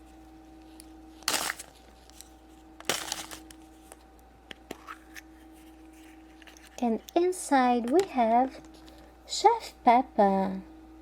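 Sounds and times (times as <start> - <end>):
wrapper crinkling and tearing: 1.2 - 3.9.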